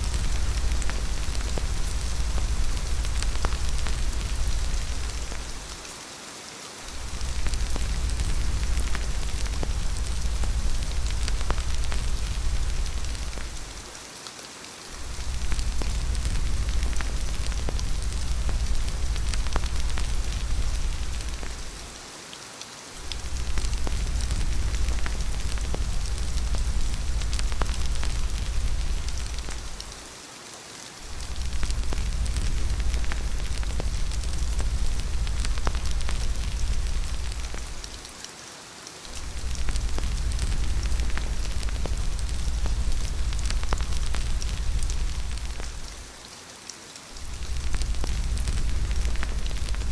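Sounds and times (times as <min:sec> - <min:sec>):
deep low rumble: 0:00.0 - 0:05.8, 0:06.9 - 0:13.8, 0:15.0 - 0:21.9, 0:23.0 - 0:30.0, 0:31.1 - 0:38.1, 0:39.2 - 0:46.0, 0:47.2 - 0:49.9
rain falling: 0:00.0 - 0:49.9.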